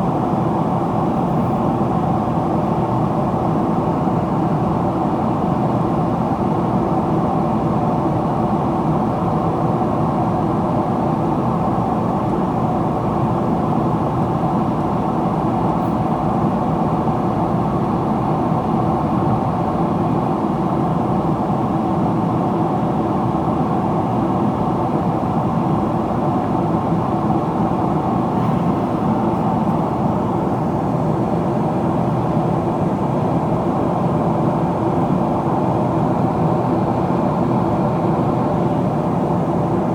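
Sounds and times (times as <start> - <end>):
airflow rush in cabin: 0.0 - 39.9
jet engine hum: 24.0 - 39.9.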